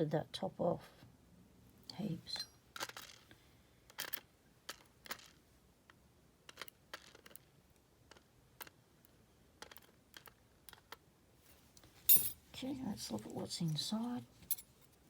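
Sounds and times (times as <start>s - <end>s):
small metal parts clicking and tapping: 2.8s - 3.3s, 3.9s - 5.4s, 6.5s - 7.5s, 9.6s - 11.0s, 11.8s - 12.4s, 14.4s - 15.0s.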